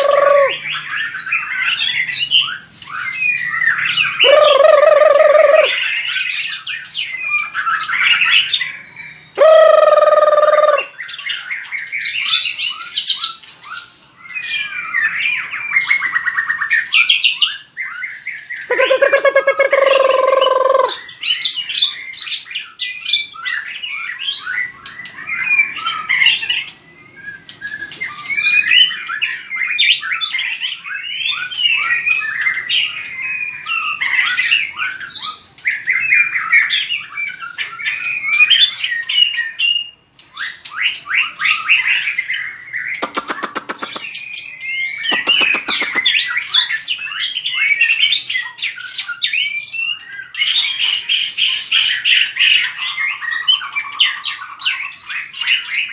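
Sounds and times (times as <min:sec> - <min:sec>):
harsh buzzy bird rasps: 0:00.0 - 0:00.8, 0:04.2 - 0:05.8, 0:09.4 - 0:11.0, 0:18.7 - 0:21.0, 0:42.9 - 0:44.3, 0:45.0 - 0:46.6
bird singing whistled phrases: 0:00.0 - 0:55.9.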